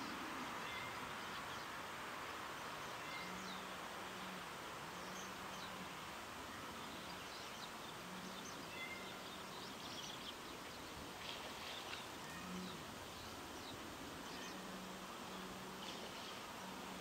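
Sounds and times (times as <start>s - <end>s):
steady outdoor hiss: 0.0s - 17.0s
small birds chirping: 6.7s - 16.8s.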